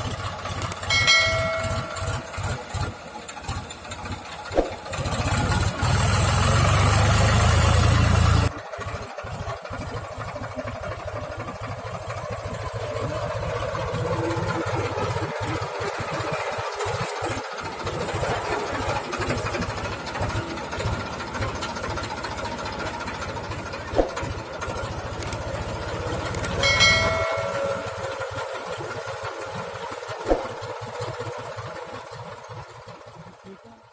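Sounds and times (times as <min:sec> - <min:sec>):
tractor diesel engine running: 0:00.0 - 0:33.9
sharp knocks: 0:24.0 - 0:24.3.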